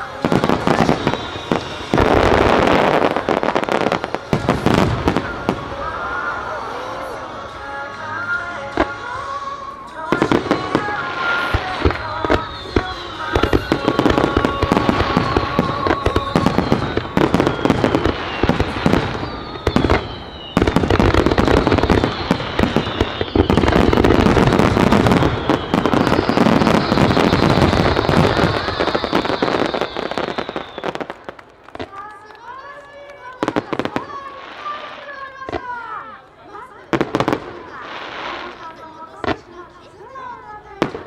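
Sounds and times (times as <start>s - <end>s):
music: 0.0s - 31.1s
fireworks bursting: 0.0s - 41.0s
falling firework whistles: 0.2s - 6.2s, 10.1s - 31.4s.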